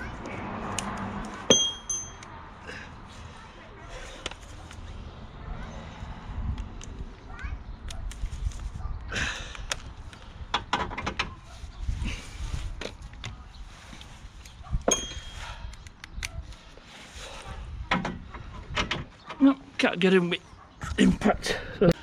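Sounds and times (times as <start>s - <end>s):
metallic clink: 1.5s - 2.3s, 14.9s - 15.5s.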